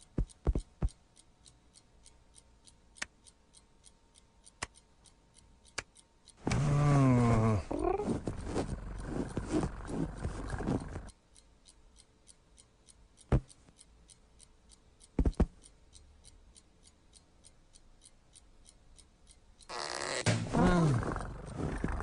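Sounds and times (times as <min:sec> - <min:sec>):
rapid ticking: 0:00.0 - 0:22.0.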